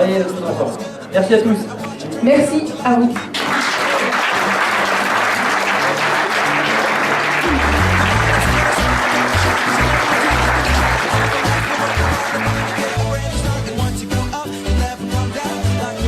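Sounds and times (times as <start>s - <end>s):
audience applauding: 3.2s - 13.8s
upbeat music with pulsing bass: 7.4s - 16.0s.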